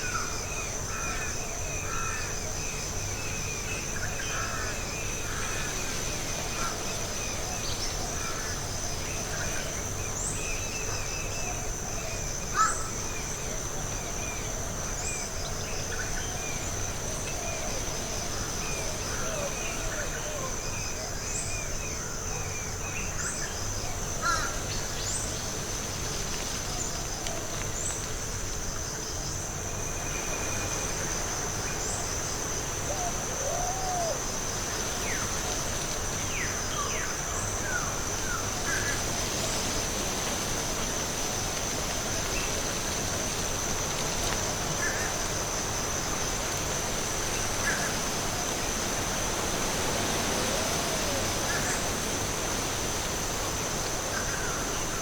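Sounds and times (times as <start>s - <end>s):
soft background hiss: 23.4s - 55.0s.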